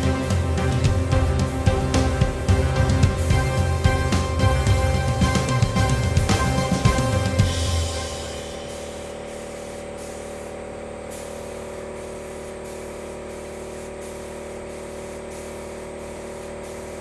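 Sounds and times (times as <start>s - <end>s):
paint spray gun hissing: 7.4s - 17.0s.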